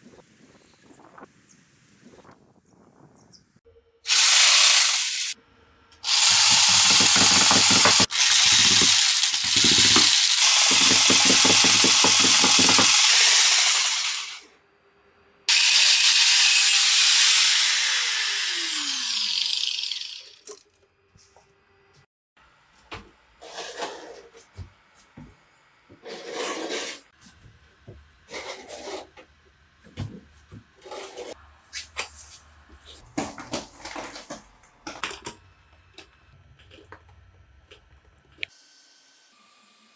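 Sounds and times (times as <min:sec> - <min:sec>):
power tool grinding: 0:04.1 - 0:05.4, 0:06.0 - 0:14.4, 0:15.5 - 0:20.5
motor winding down whine: 0:15.5 - 0:20.5.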